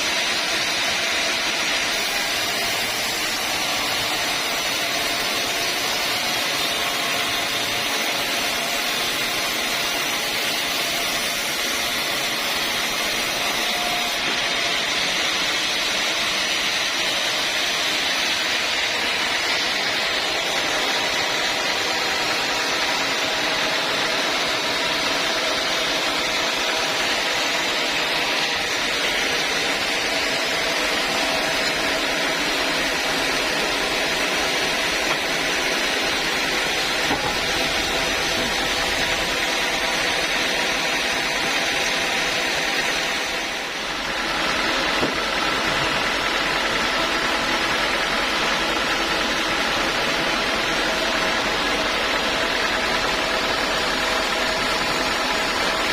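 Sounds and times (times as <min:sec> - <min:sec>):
sawmill saw hissing: 0:00.0 - 0:55.9.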